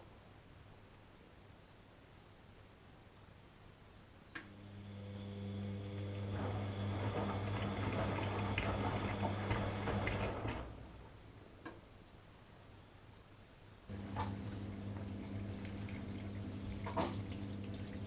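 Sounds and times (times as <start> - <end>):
washing machine electric hum: 4.4 - 11.4, 13.9 - 18.0.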